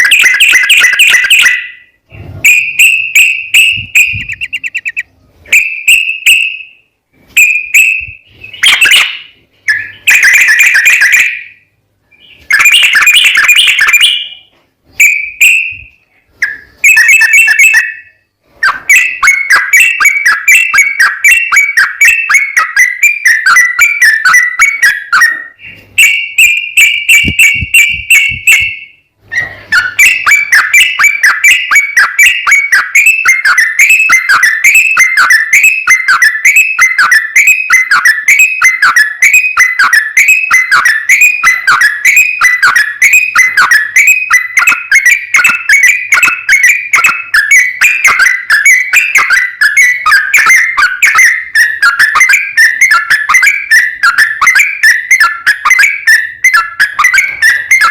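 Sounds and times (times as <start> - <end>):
bird singing whistled song: 0.0 - 57.9.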